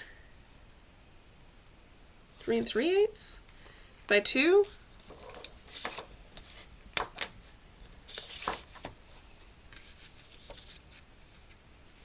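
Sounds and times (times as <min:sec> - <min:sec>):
cardstock rustling: 0:05.0 - 0:12.0.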